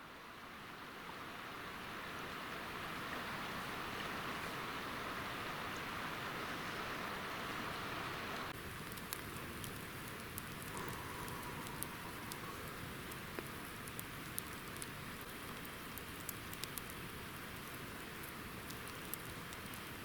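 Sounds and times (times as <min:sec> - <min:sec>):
campfire crackling and popping: 0:08.6 - 0:20.0.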